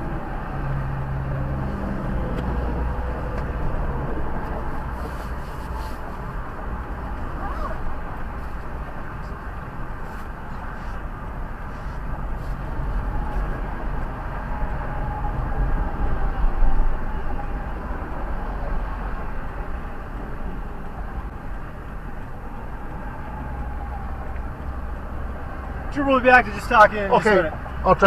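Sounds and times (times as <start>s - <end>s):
loud vehicle passing: 0.0s - 8.2s
highway traffic rumble: 0.0s - 28.0s.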